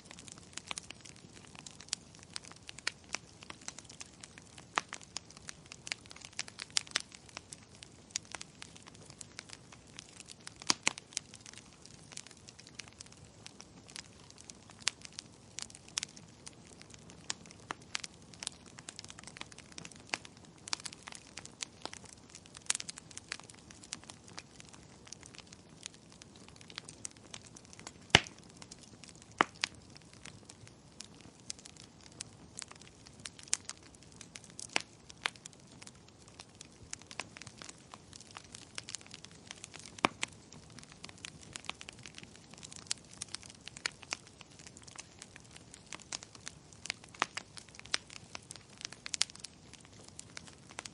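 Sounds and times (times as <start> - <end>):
wood fire crackling: 0.0 - 50.9
sharp pop of fire: 28.1 - 28.4.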